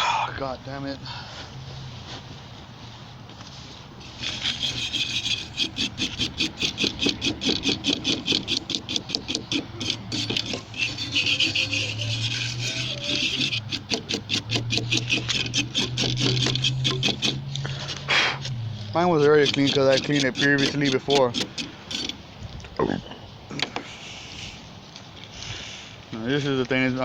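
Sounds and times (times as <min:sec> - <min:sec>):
rapid scrubbing of metal parts: 0:04.0 - 0:22.3.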